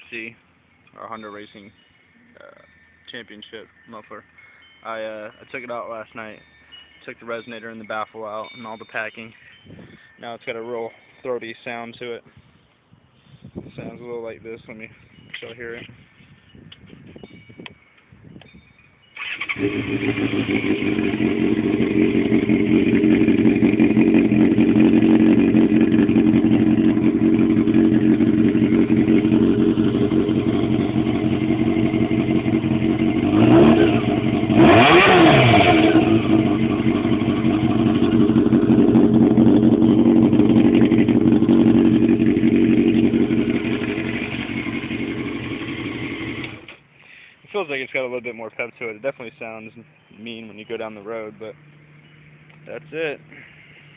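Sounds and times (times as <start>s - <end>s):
motorcycle engine revving: 19.2s - 46.7s
motorcycle engine starting: 19.2s - 46.8s
motorcycle engine idling: 19.6s - 46.7s.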